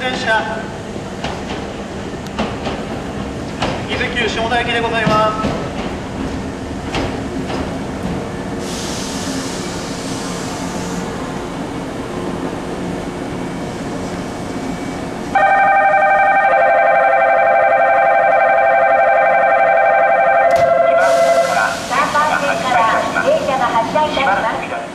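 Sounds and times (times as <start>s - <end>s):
electric train humming: 0.0s - 24.9s
air hiss: 8.6s - 11.1s, 21.0s - 22.4s
electronic departure bell ringing: 15.4s - 21.0s.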